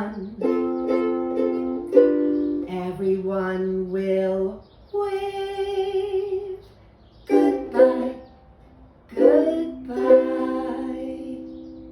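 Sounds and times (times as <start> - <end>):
ukulele chords strummed: 0.0 - 3.0, 7.3 - 8.3, 9.1 - 11.9
person singing with vibrato: 0.0 - 6.7, 7.3 - 8.5, 9.1 - 11.9.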